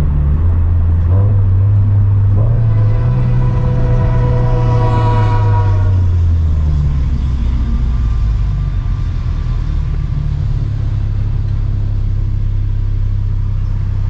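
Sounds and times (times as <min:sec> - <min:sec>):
car engine droning: 0:00.0 - 0:14.0
train horn blast: 0:02.3 - 0:07.0.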